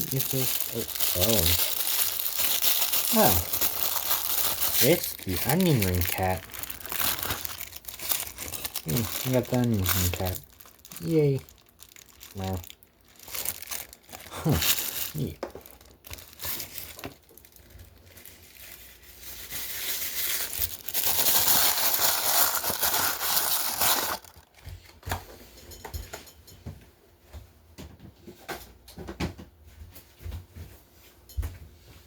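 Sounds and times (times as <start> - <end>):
plastic packaging crinkling: 0.0 - 24.6.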